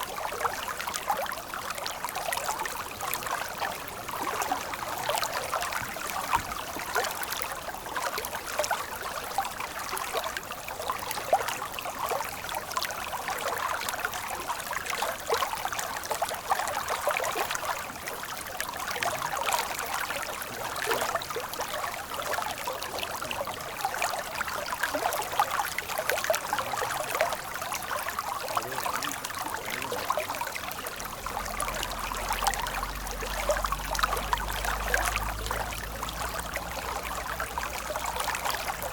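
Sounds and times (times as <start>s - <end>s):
stream water babbling: 0.0s - 38.9s
faint low rumble: 30.5s - 38.9s.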